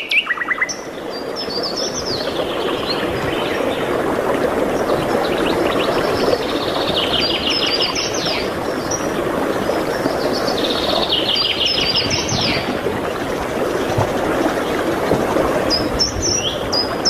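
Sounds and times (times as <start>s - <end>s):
songbird trilling song: 0.0s - 0.9s
steady rushing background noise: 1.6s - 17.0s.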